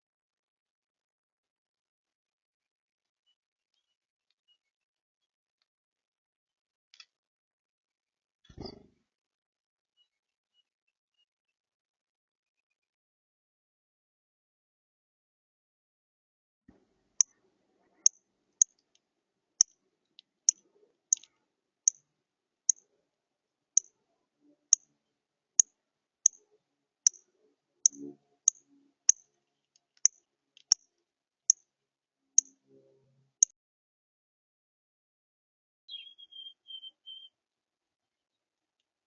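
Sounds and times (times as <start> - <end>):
songbird chip notes: 35.9 - 37.3.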